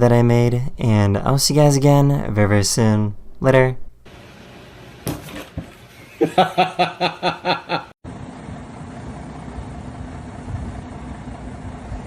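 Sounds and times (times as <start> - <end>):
person laughing: 6.0 - 8.0.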